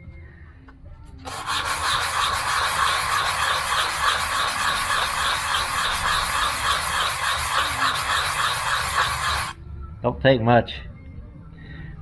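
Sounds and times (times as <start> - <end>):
metal rasping on sandpaper: 1.2 - 9.6.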